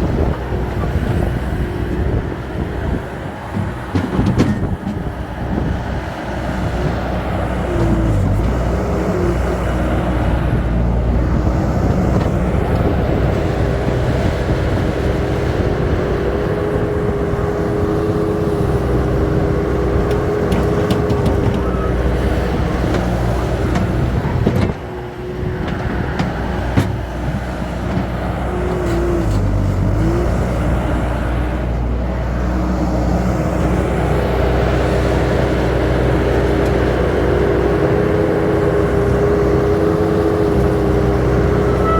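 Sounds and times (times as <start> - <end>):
heavy machine engine running: 0.0 - 41.9
machinery knocks and clicks: 3.4 - 5.2, 20.0 - 21.8, 22.7 - 29.4
steady whining tone: 40.2 - 41.9.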